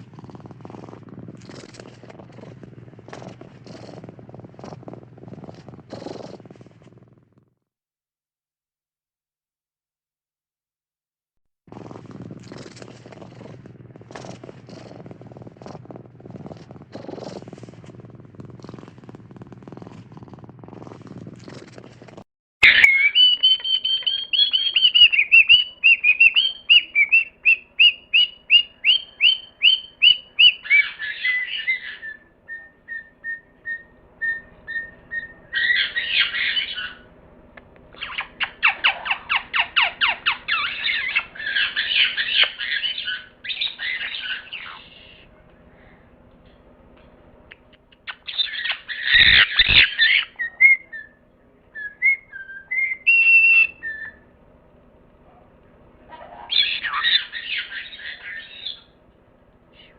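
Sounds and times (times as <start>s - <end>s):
bird chirping and squawking: 22.6s - 32.3s, 32.9s - 37.1s, 38.0s - 45.2s, 48.0s - 51.2s, 51.8s - 54.3s, 56.2s - 59.0s
low noisy rumbling: 23.2s - 48.9s.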